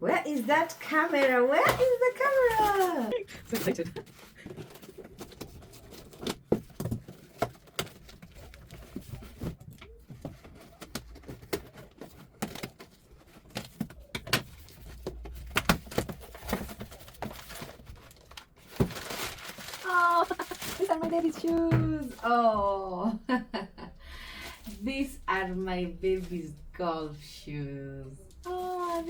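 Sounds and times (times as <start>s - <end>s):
packaging crinkling and rustling: 0.6s - 21.7s, 28.3s - 29.0s.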